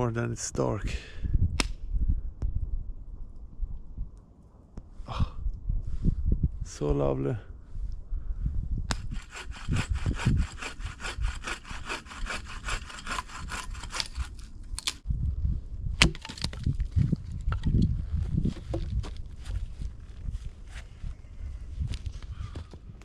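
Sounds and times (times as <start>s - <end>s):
sharp crack: 1.6s - 1.8s
hand saw cutting wood: 8.9s - 15.0s.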